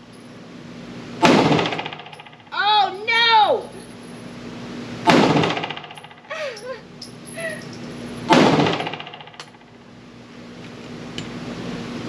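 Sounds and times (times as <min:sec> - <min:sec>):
pistol shot echoing indoors: 0:01.2 - 0:02.3, 0:05.0 - 0:06.2, 0:08.3 - 0:09.6.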